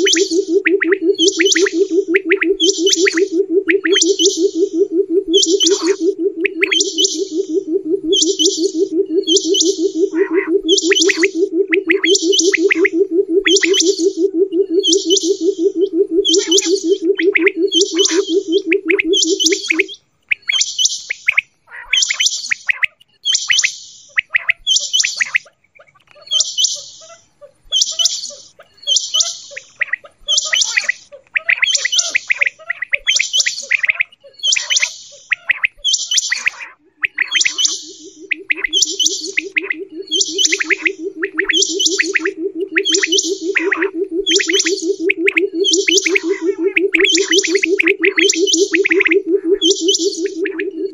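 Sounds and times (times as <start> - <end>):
low pulsed trill: 0.0 - 19.9, 36.9 - 50.9
quail calling: 0.0 - 20.6, 21.3 - 50.9.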